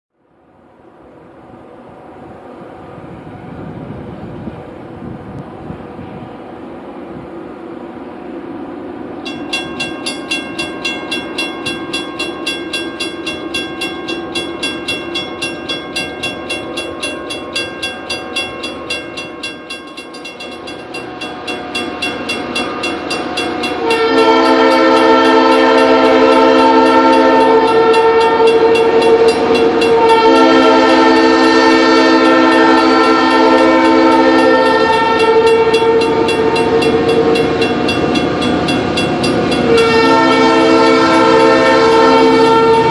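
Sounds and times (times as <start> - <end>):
locomotive engine pulsing: 1.0 - 42.9
locomotive air horn blasts: 23.0 - 37.8, 39.4 - 42.9.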